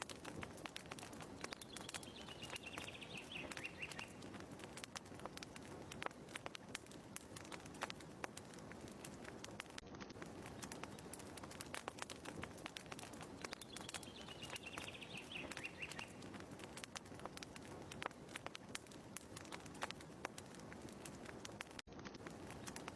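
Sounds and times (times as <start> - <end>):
wood fire crackling: 0.0 - 22.9
bird warbling call: 1.7 - 4.2, 13.7 - 16.2.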